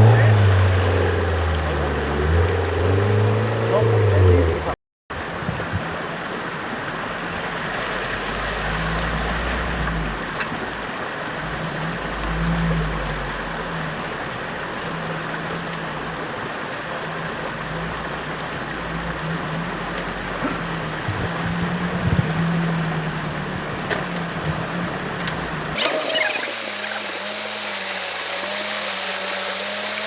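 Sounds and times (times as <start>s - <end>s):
rushing noise: 25.8s - 30.0s.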